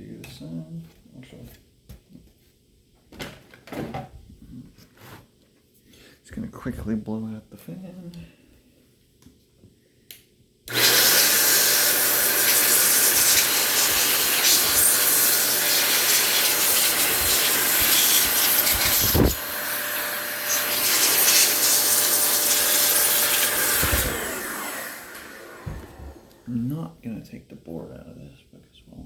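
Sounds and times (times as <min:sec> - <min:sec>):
air duster blowing air: 0:10.7 - 0:26.5.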